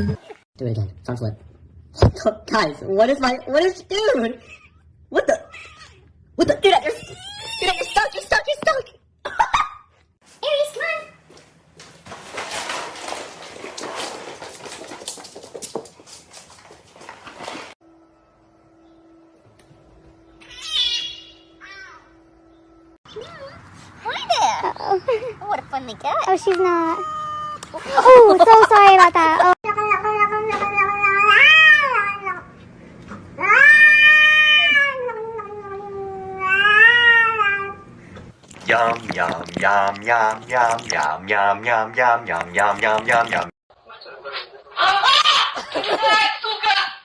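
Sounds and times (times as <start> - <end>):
cat yowling: 5.4 - 6.0, 7.0 - 8.1, 26.9 - 27.7, 29.8 - 32.5, 33.4 - 37.8
pet scrabbling and scratching: 11.8 - 17.8.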